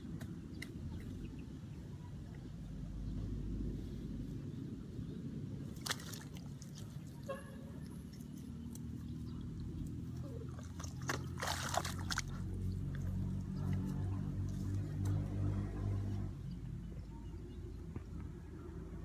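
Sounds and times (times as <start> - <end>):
water and mud splashing: 5.3 - 16.3.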